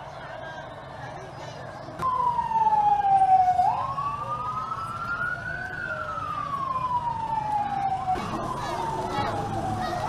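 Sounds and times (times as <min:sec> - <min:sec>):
siren wailing: 0:02.1 - 0:10.0.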